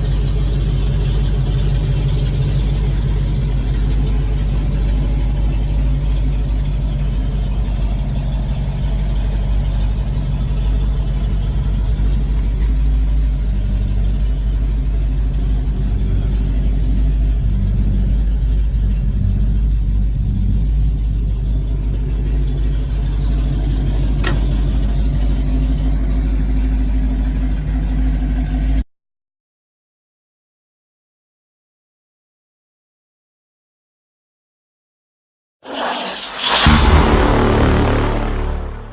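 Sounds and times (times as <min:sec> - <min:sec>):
car engine running: 0:00.0 - 0:28.8.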